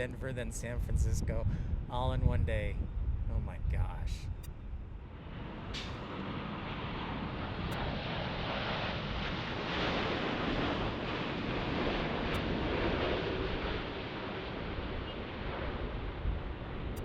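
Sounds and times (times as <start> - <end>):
jet airliner engines rushing: 0.0 - 17.0.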